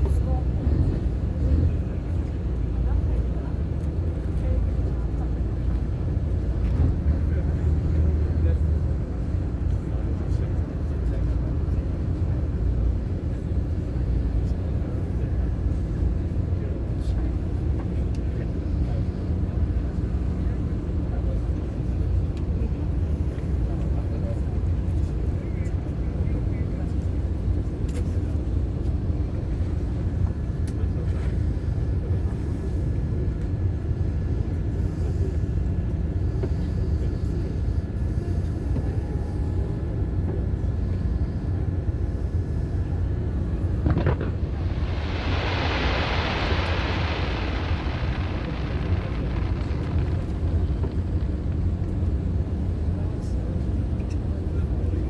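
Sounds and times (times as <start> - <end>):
steady low rumble: 0.0 - 24.6, 36.2 - 55.0
firework crackling: 43.1 - 53.0
firework bang: 43.6 - 52.9.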